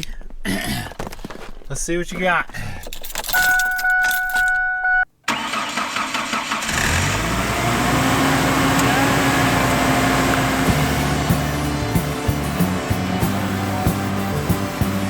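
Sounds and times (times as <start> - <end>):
vehicle warning chime: 3.4 - 5.4
engine cranking and idling: 5.3 - 15.0.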